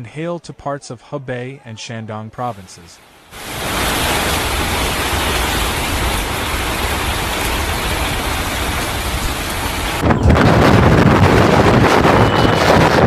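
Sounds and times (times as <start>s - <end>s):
heavy rain hissing: 3.2s - 13.0s
wind buffeting microphone: 4.6s - 13.0s.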